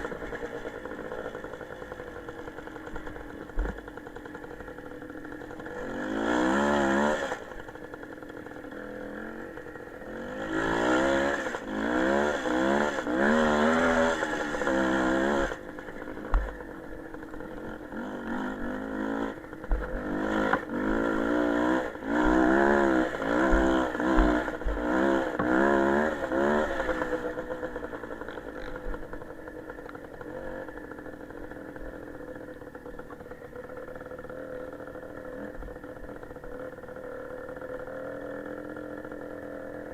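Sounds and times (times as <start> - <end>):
small motorcycle engine revving: 0.0 - 39.9.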